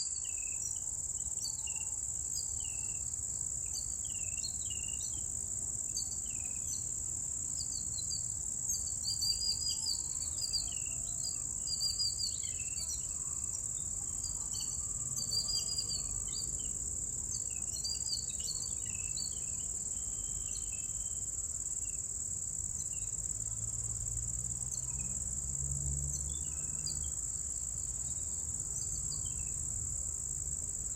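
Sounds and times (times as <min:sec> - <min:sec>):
insect trill: 0:00.0 - 0:30.9
small birds chirping: 0:03.7 - 0:05.3, 0:05.9 - 0:21.2, 0:27.8 - 0:29.6.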